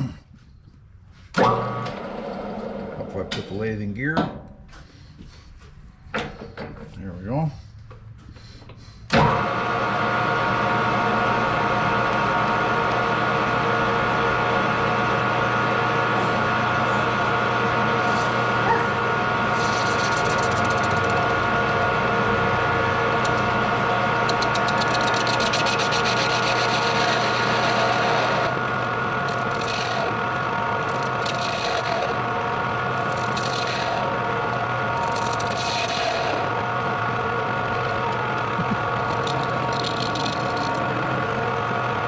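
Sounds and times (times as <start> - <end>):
lathe gear train whining: 9.1 - 42.0
cutting tool scraping steel: 18.0 - 36.7, 37.5 - 41.2.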